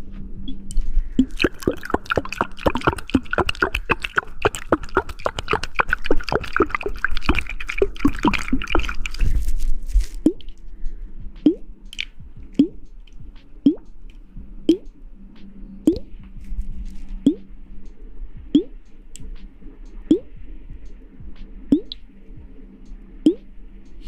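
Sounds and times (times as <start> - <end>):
wet squishing and clicking: 0.7 - 10.6, 11.4 - 15.0
drip-like plops: 1.2 - 9.4, 21.7 - 22.0.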